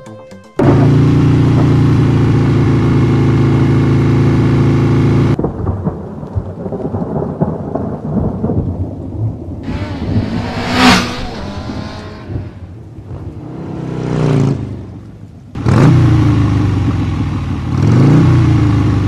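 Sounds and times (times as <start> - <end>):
motorcycle engine running: 0.6 - 5.4, 9.6 - 12.6, 15.6 - 19.0
low rumble: 9.6 - 13.3.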